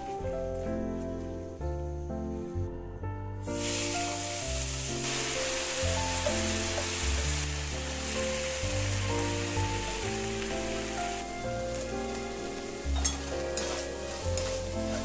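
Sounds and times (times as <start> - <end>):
light background music: 0.0 - 15.0
greens sizzling in a frying pan: 3.4 - 15.0.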